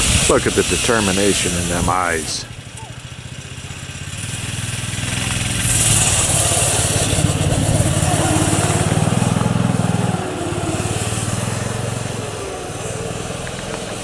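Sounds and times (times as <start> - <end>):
loud hiss: 0.0 - 2.5
engine running: 0.0 - 14.0.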